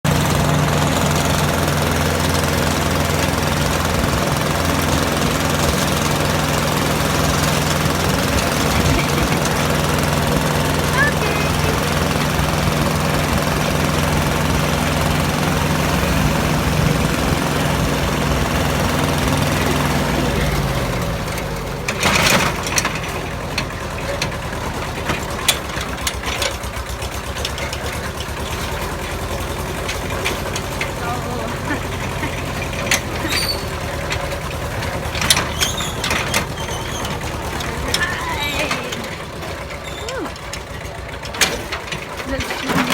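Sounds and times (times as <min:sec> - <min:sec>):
tractor engine running: 0:00.0 - 0:42.9
short squeaks: 0:32.6 - 0:34.3, 0:35.2 - 0:38.0, 0:39.7 - 0:40.7.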